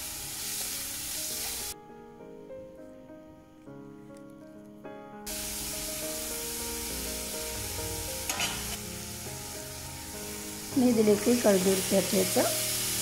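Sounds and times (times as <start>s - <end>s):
onions sizzling in a pan: 0.0s - 1.8s, 5.3s - 13.0s
background music: 0.0s - 13.0s.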